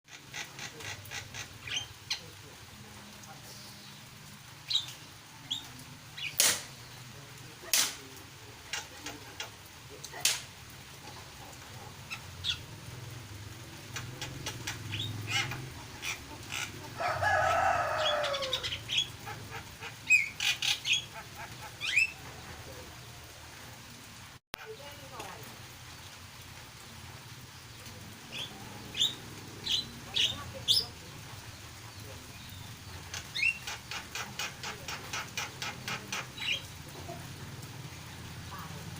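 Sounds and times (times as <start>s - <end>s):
starling chirps and calls: 0.1s - 2.4s, 3.5s - 7.1s, 11.0s - 22.8s, 27.6s - 38.9s.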